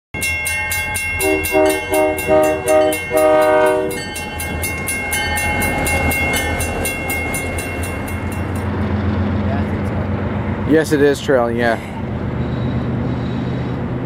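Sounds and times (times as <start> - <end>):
railway crossing bell ringing: 0.2 - 9.9
passing train rumble: 0.2 - 14.0
locomotive horn blasts: 1.2 - 4.2.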